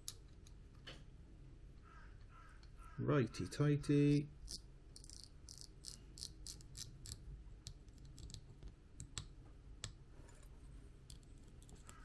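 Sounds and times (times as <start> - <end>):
small metal clicks of fishing reel: 4.5 - 7.2.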